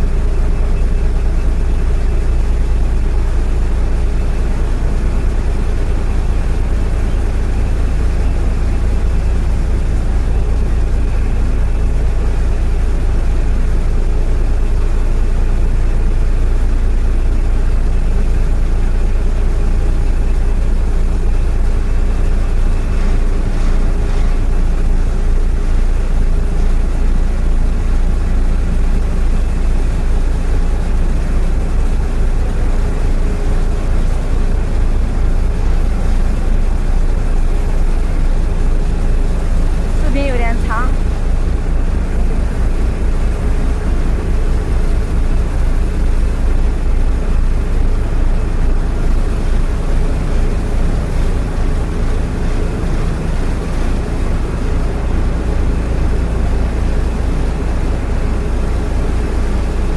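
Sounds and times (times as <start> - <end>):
boat diesel engine running: 0.0 - 59.9.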